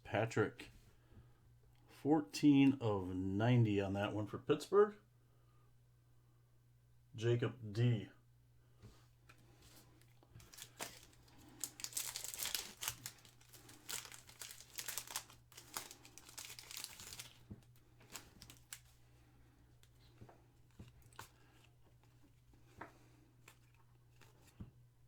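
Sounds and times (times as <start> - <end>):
faint steady hum: 0.0 - 25.0
foil wrapper crinkling and tearing: 9.7 - 19.0, 20.7 - 21.5.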